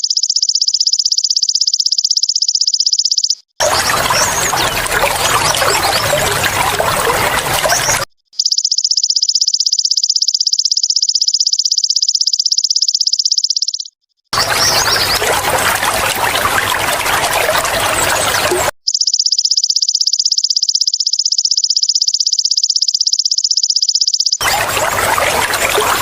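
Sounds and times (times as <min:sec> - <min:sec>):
insect high pulsed trill: 0:00.0 - 0:03.4, 0:08.4 - 0:14.0, 0:18.8 - 0:24.4
water trickling: 0:03.6 - 0:08.1, 0:14.4 - 0:18.7, 0:24.4 - 0:26.0.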